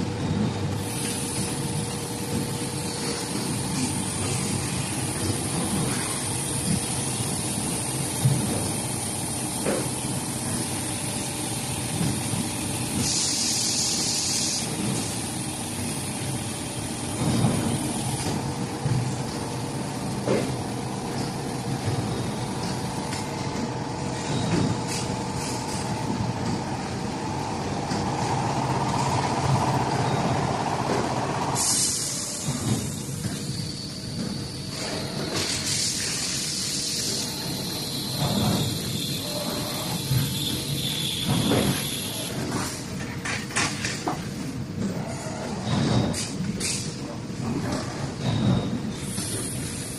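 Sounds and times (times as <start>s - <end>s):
steady machine noise: 0.0s - 43.6s
machine whine: 0.2s - 42.6s
air hissing: 0.8s - 18.8s, 31.5s - 42.8s, 49.0s - 49.9s.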